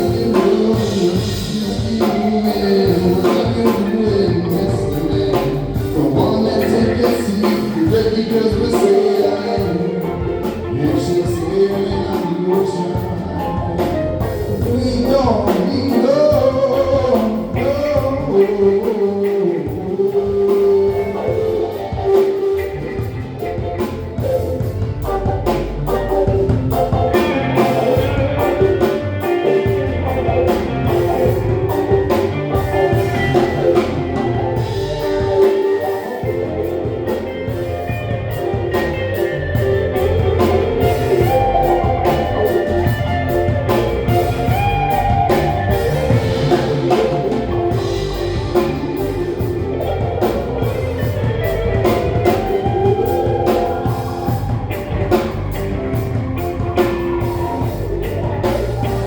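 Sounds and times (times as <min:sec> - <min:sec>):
lead vocal singing: 0:00.0 - 0:23.9, 0:26.9 - 0:38.6, 0:39.2 - 0:59.0
drum kit: 0:00.0 - 0:59.0
electric guitar: 0:00.0 - 0:59.0.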